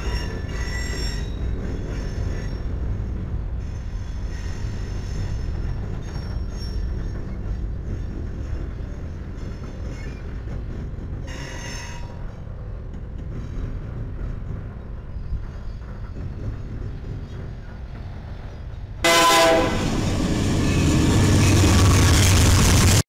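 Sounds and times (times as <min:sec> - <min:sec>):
high wheel squeal: 0:00.0 - 0:02.7
train cars rumbling past: 0:00.0 - 0:23.0.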